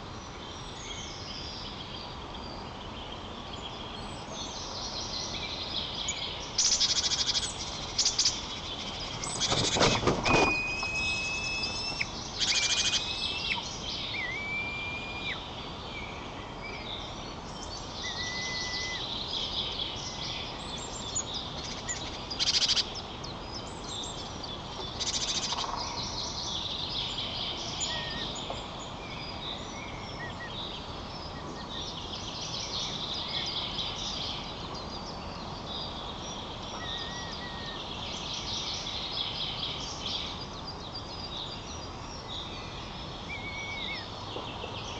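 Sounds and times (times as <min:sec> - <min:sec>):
wild birds singing and calling: 0:00.0 - 0:44.9
whistled bird notes: 0:09.2 - 0:15.4, 0:18.0 - 0:19.1, 0:43.3 - 0:44.1.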